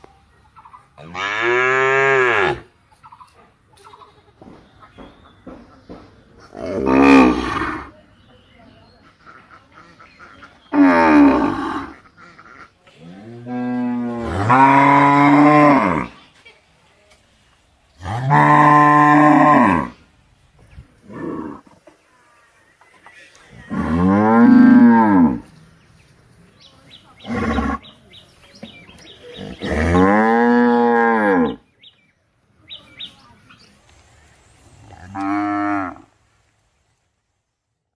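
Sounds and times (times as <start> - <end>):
cow mooing: 13.1 - 16.1, 23.7 - 25.4, 29.5 - 31.6.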